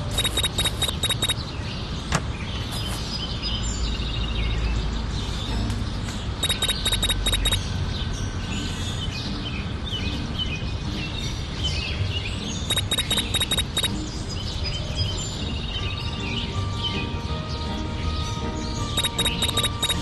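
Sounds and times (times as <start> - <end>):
high steady tone: 0.0 - 1.4, 6.4 - 7.6, 12.7 - 13.9, 19.0 - 20.0
birds chirping: 0.0 - 20.0
rapid ticking: 0.1 - 1.4, 6.4 - 7.6, 12.7 - 13.9, 19.0 - 20.0.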